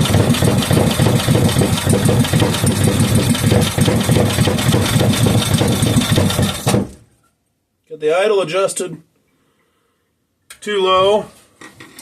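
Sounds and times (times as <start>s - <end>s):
small engine idling: 0.0s - 7.0s.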